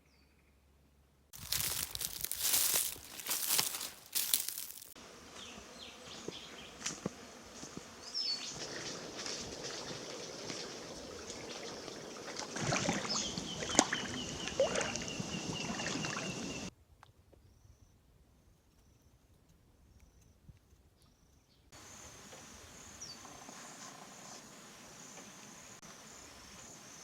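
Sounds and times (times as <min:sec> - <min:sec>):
crinkling and rustling: 0:01.4 - 0:05.0.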